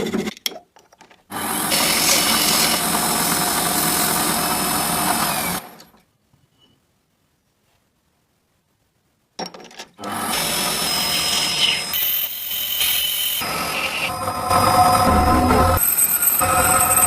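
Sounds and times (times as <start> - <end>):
power tool whining: 1.3 - 5.8.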